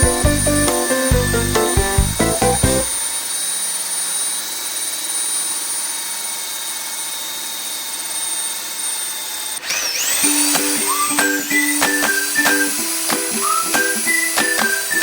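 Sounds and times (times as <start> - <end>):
music with plucked notes: 0.0 - 3.0
core drill whining: 0.0 - 15.0.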